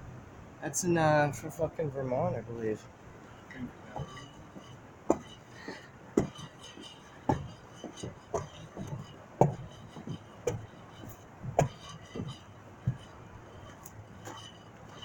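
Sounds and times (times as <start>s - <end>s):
footsteps walking: 3.3s - 15.0s
soft shoe scuffs: 3.9s - 14.8s.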